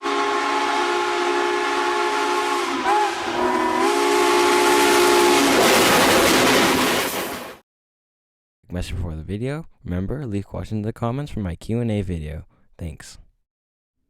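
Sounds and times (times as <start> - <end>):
steam locomotive chime whistle: 0.0 - 5.7.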